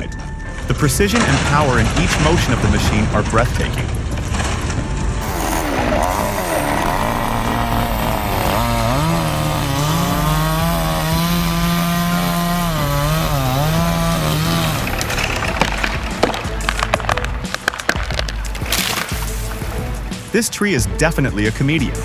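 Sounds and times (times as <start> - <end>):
chainsaw engine revving: 4.2 - 20.2.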